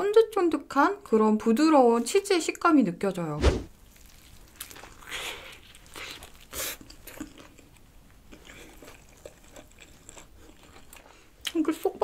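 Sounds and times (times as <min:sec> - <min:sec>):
person chewing: 0:03.8 - 0:11.6.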